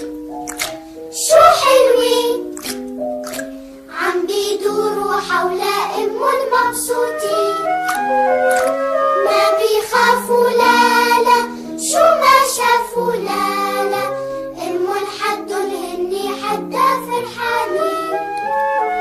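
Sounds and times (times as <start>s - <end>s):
bright instrumental backing: 0.0s - 19.0s
child singing: 1.2s - 2.5s, 3.9s - 7.7s, 9.3s - 18.2s.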